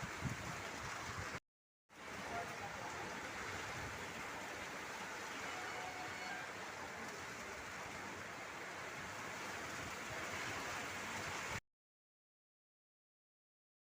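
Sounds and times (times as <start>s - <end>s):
rain hissing: 2.0s - 11.6s.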